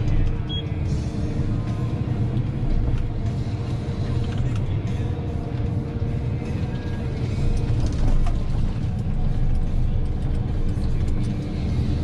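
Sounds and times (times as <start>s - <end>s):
mechanical clicks and clanks: 0.0s - 0.6s, 4.1s - 4.7s, 6.5s - 11.7s
diesel engine under load: 0.0s - 12.0s.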